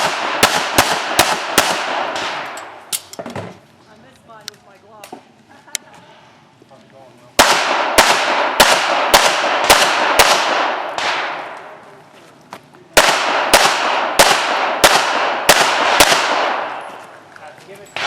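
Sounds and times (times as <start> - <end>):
pistol shots: 0.0 - 2.8, 7.4 - 11.8, 13.0 - 17.0.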